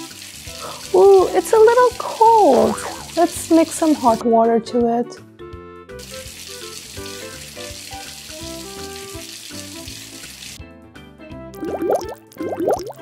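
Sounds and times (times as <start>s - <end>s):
water running into a bath: 0.0s - 4.2s, 5.9s - 10.6s, 11.6s - 13.0s
light background music: 0.0s - 13.0s.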